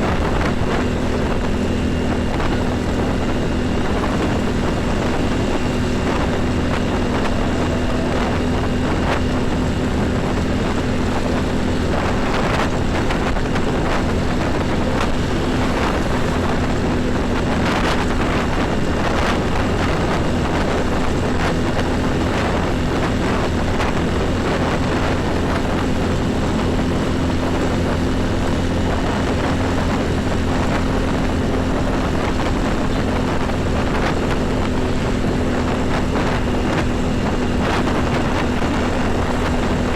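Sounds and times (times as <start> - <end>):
heavy highway traffic: 0.0 - 39.9
low engine hum: 0.0 - 39.9
vehicles rushing by: 0.0 - 39.9.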